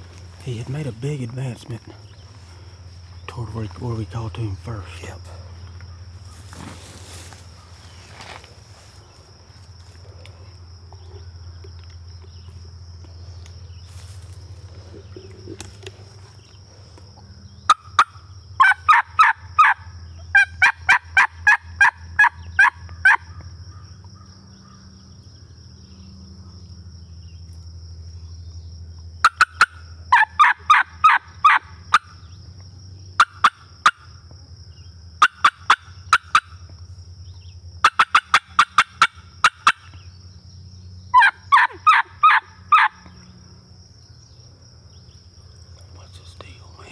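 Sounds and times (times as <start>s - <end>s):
steady low hum: 0.0s - 20.6s
turkey call yelps: 17.7s - 23.4s, 29.2s - 32.2s, 33.2s - 34.1s, 35.2s - 36.6s, 37.8s - 40.0s, 41.1s - 43.1s.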